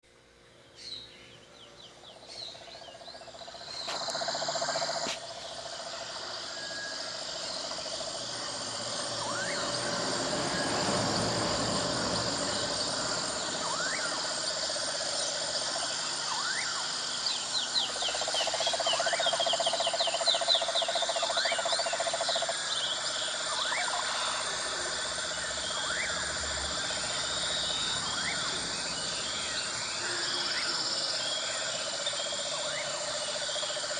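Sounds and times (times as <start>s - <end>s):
insects chirring: 0.2s - 33.9s
rising whistled call: 12.6s - 14.4s, 16.2s - 19.2s, 23.5s - 31.4s.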